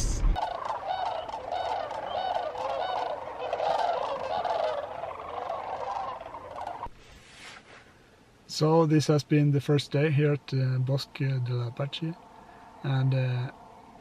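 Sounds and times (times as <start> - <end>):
flock of waterbirds calling: 0.4 - 6.9.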